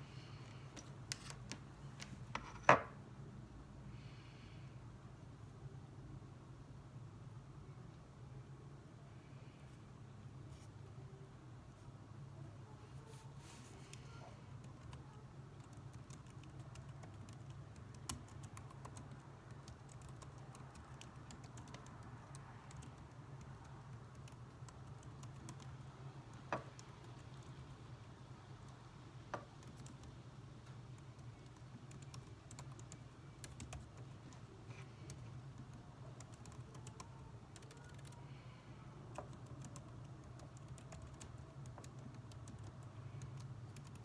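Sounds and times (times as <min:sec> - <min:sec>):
keyboard typing: 0:14.6 - 0:25.8, 0:29.4 - 0:30.2, 0:30.8 - 0:44.0.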